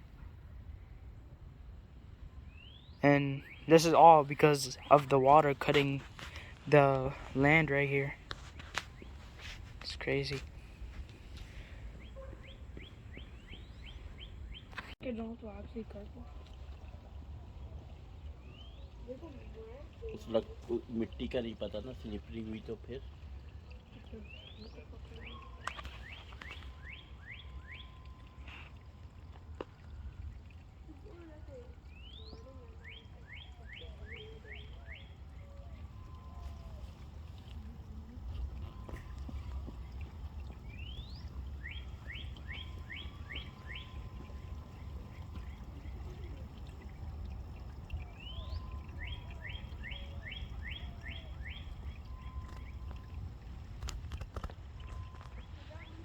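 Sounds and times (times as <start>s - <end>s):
songbird singing: 0.0s - 56.0s
songbird whistling notes: 32.0s - 53.3s, 54.8s - 56.0s
steady low rumble: 35.9s - 55.1s.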